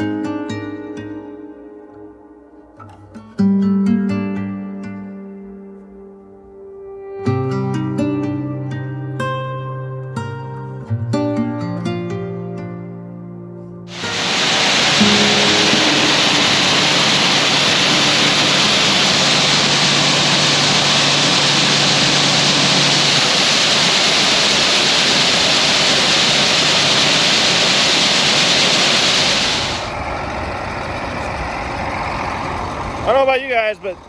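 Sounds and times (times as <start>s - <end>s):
loud steady rushing hiss: 13.9s - 34.0s
low engine hum: 13.9s - 34.0s.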